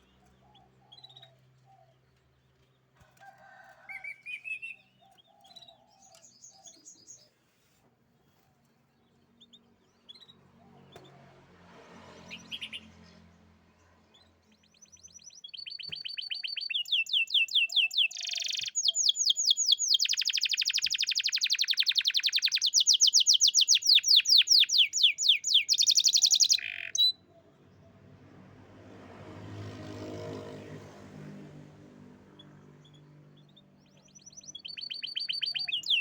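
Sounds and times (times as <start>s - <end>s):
canary singing trills: 0.0s - 2.0s, 12.2s - 13.1s, 14.1s - 27.6s, 32.4s - 36.0s.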